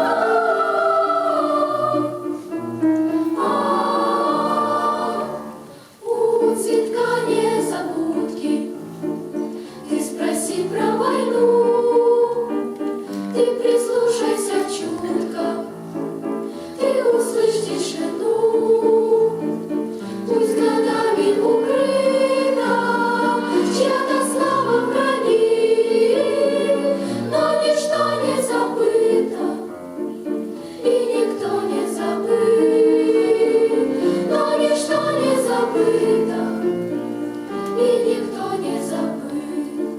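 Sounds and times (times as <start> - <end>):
choir singing with accompaniment: 0.0 - 39.9.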